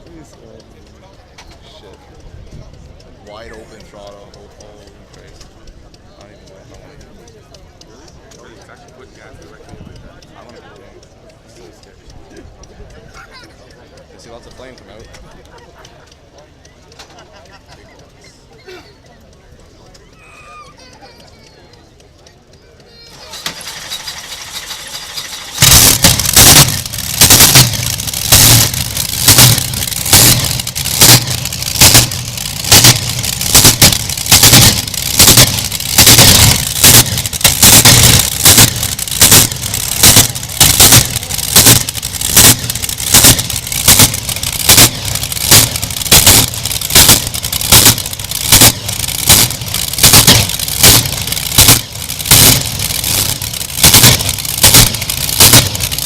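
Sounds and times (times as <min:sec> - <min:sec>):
tractor engine starting and running: 0:22.1 - 0:56.0.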